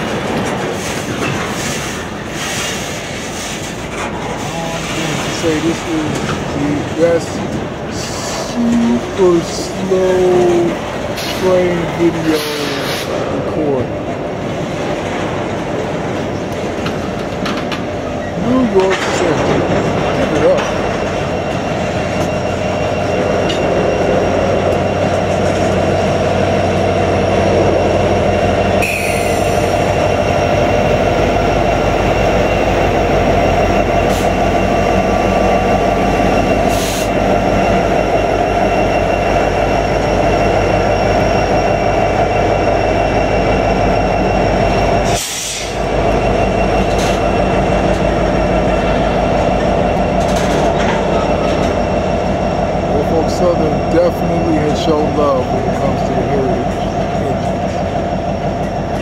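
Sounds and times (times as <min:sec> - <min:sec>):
diesel locomotive working: 0:00.0 - 0:59.0
wheels rumbling on rail: 0:00.0 - 0:59.0
squealing wheel flanges: 0:20.0 - 0:52.2.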